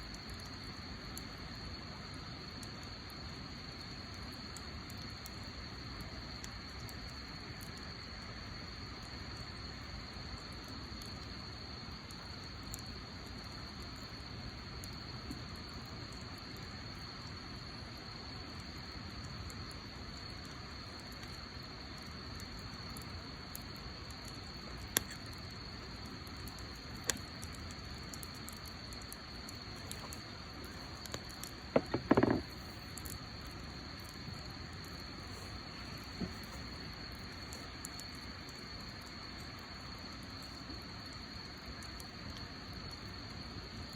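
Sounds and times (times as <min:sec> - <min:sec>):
wood fire hissing and popping: 0:00.0 - 0:43.9
clatter of knocks: 0:31.7 - 0:32.5.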